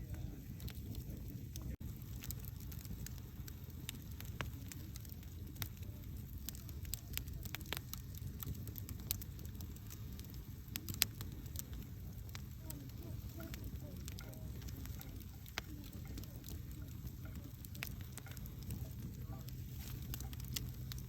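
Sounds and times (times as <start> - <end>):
campfire flames rumbling: 0.0 - 21.0
fire crackles and pops: 0.0 - 21.0.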